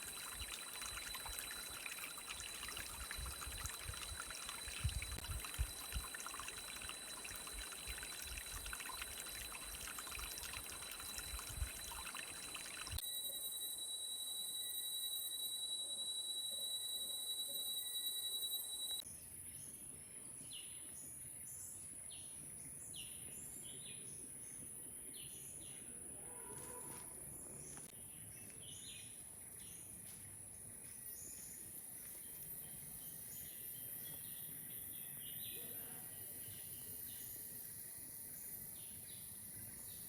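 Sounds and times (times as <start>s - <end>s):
high-pitched insect drone: 0.0s - 19.0s
piercing insect tone: 0.0s - 19.0s.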